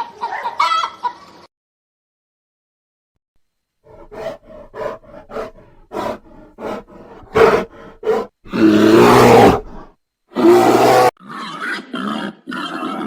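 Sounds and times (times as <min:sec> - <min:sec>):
animal calls: 0:03.9 - 0:13.0.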